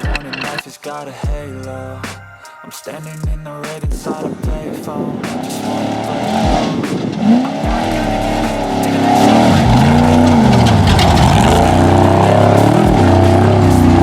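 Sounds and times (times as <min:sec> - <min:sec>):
truck engine revving: 0:05.3 - 0:14.0.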